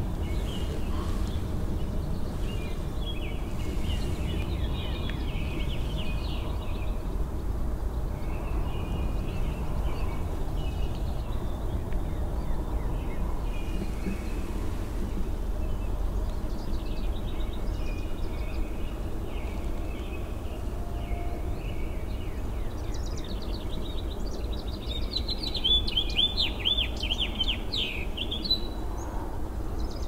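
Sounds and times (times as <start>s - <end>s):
steady low rumble: 0.0s - 20.6s
small birds chirping: 0.0s - 29.2s.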